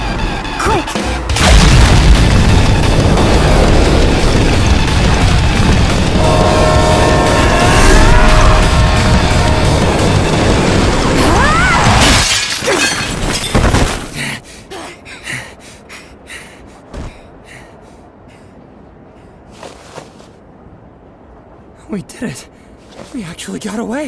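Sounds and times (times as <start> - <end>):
music: 0.0 - 1.5, 6.9 - 11.8
crash with breaking glass: 11.8 - 14.0.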